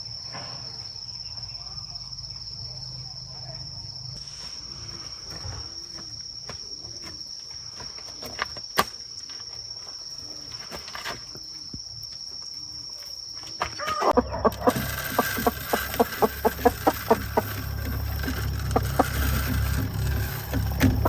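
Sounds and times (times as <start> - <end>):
crickets droning: 0.0 - 21.0
chickens clucking: 13.8 - 21.0
sharp clicks: 14.1 - 21.0.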